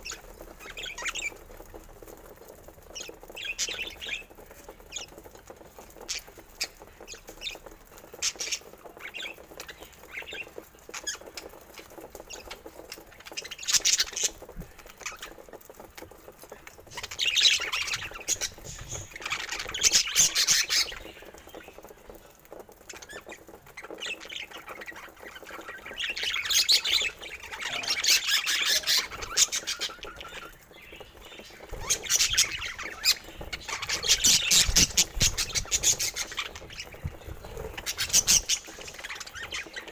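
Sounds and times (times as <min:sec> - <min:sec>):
bird chirps and clicks: 0:00.0 - 0:39.9
budgerigars chattering and warbling: 0:03.0 - 0:04.3, 0:06.1 - 0:15.4, 0:16.8 - 0:21.9, 0:22.9 - 0:39.9.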